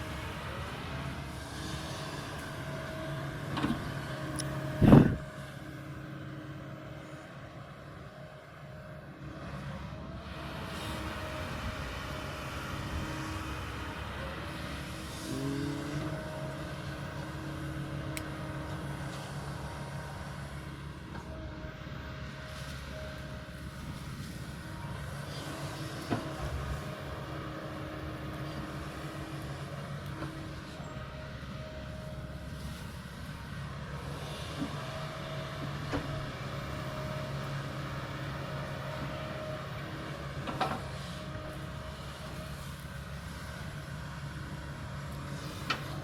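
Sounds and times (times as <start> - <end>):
excavator diesel engine humming: 0.0 - 46.0
higher whining tone: 4.4 - 5.3.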